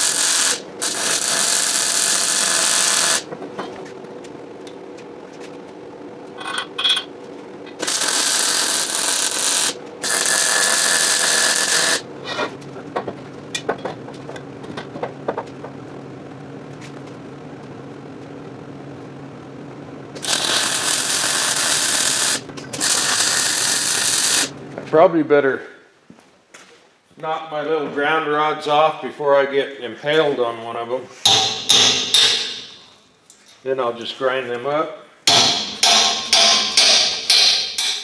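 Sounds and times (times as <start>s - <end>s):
welder sputters: 0.0s - 3.3s, 7.7s - 12.0s, 20.2s - 24.5s, 31.3s - 32.9s, 35.3s - 38.0s
welding arc crackle: 0.0s - 3.3s, 7.6s - 12.1s, 20.1s - 24.6s
steady low hum: 0.0s - 38.0s.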